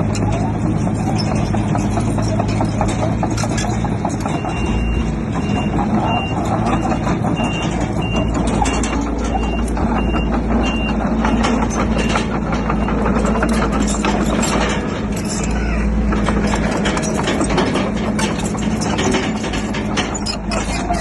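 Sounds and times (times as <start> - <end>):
heavy diesel machinery running: 0.0 - 21.0
metallic clanking: 0.0 - 21.0
reversing alarm beeping: 4.2 - 14.0.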